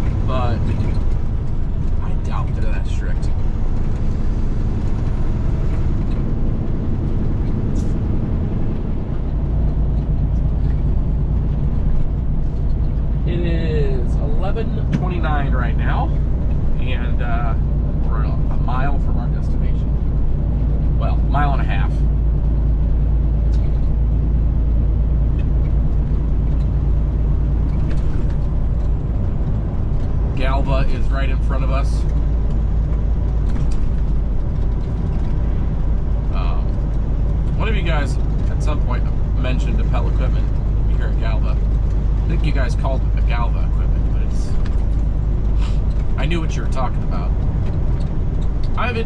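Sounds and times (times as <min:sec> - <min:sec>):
road noise inside cab: 0:00.0 - 0:49.0
truck diesel engine drone: 0:00.0 - 0:49.0.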